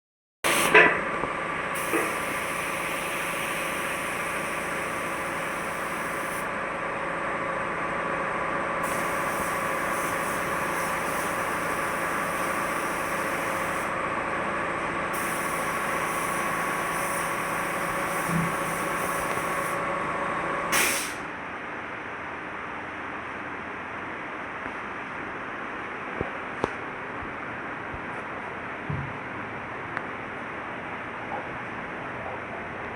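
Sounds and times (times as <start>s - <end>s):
short burst of hiss: 20.7s - 21.3s.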